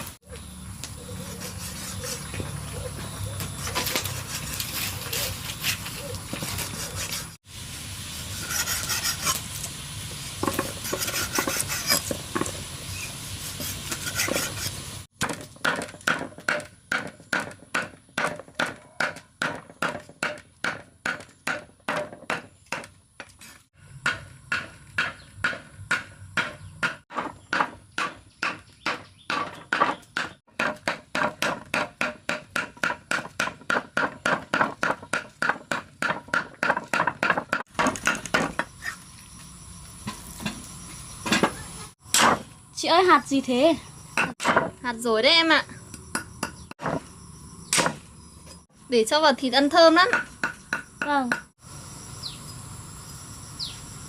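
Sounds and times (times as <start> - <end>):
knife chopping on wooden board: 24.1 - 38.6.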